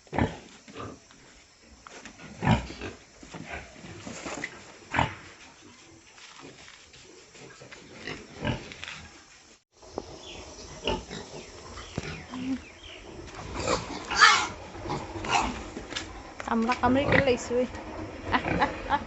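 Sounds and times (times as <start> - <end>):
pigs grunting and squealing: 2.2 - 4.0, 7.3 - 9.2, 10.6 - 15.8, 17.0 - 19.0.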